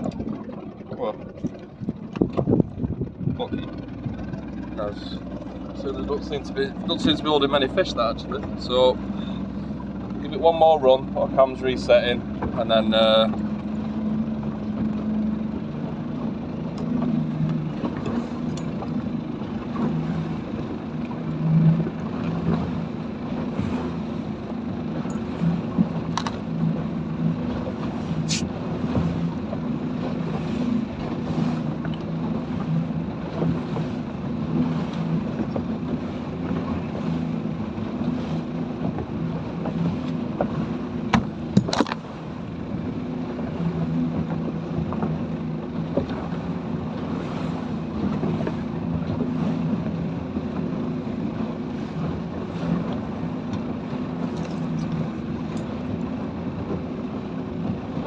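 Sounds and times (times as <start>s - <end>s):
sharp knocks on boat: 0.0s - 5.6s, 12.2s - 15.2s, 16.2s - 24.3s, 24.9s - 42.2s, 42.8s - 50.8s
speedboat engine running: 0.0s - 58.0s
water noise: 0.0s - 58.0s
wind: 0.0s - 58.0s.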